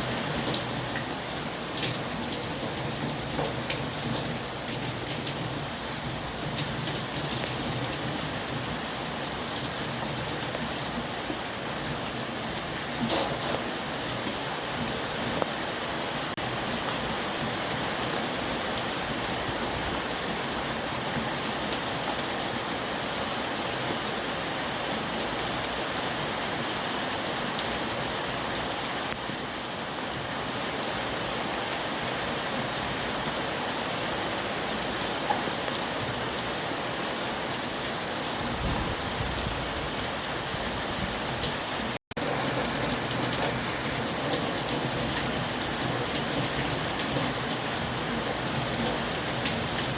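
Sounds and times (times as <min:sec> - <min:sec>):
heavy rain falling: 0:00.0 - 0:49.9.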